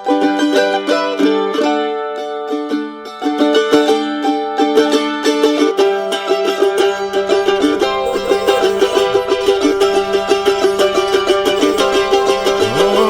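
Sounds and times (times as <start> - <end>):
plucked-string instrumental music: 0.0 - 13.0.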